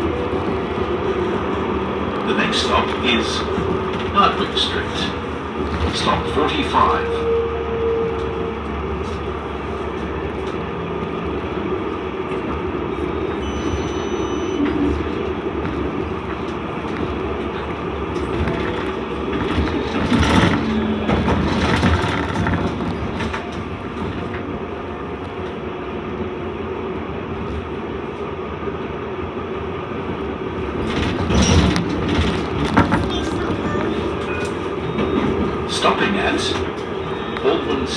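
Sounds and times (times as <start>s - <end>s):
tram rolling and motor noise: 0.0s - 37.9s.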